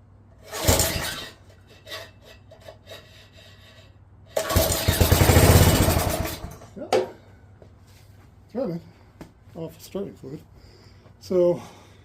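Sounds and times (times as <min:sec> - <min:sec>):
small engine pull-started: 0:00.4 - 0:02.1, 0:04.3 - 0:06.7
engine running: 0:04.3 - 0:06.7.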